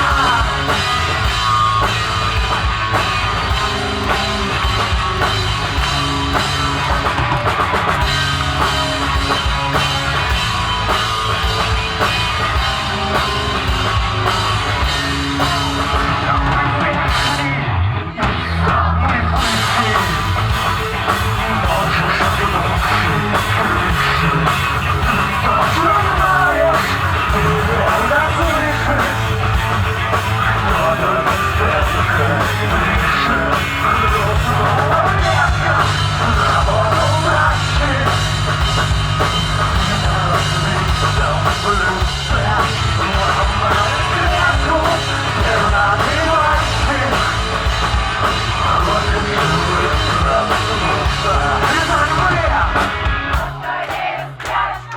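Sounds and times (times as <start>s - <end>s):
shouted singing: 0.0s - 2.4s, 14.8s - 38.3s, 39.8s - 54.9s
bass line: 0.0s - 54.9s
drum kit: 0.0s - 54.9s
rock band playing live: 0.0s - 54.9s.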